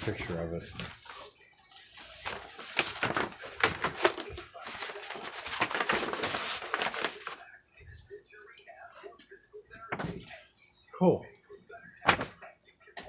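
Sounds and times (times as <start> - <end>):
packaging rustling and crinkling: 0.0 - 7.4.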